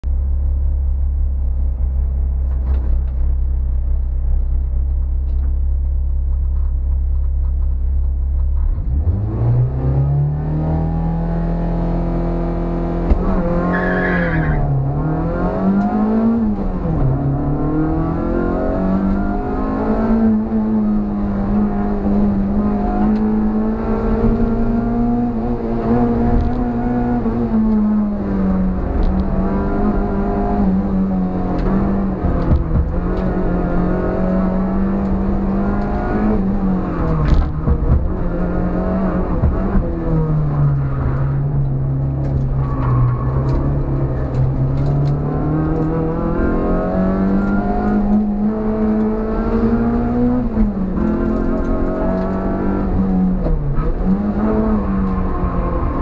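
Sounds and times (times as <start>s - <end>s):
car engine idling and revving: 0.0s - 56.0s
tyre squeal: 13.4s - 14.8s.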